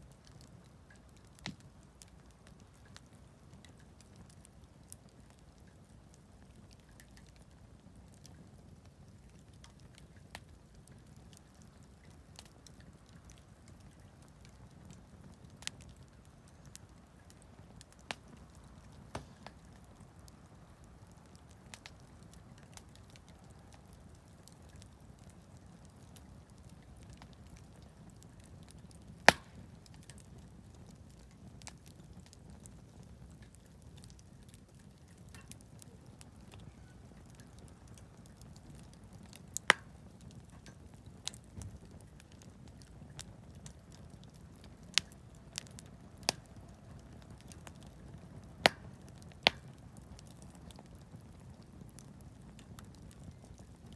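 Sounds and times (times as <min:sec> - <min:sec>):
campfire crackling: 0:00.0 - 0:53.9
loud sharp pop: 0:19.1 - 0:19.6, 0:29.3 - 0:29.7.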